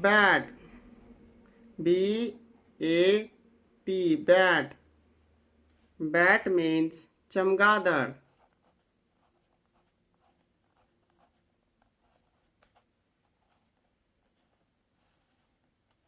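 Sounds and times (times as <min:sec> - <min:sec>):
faint light clicks and scratches: 0:09.3 - 0:16.0.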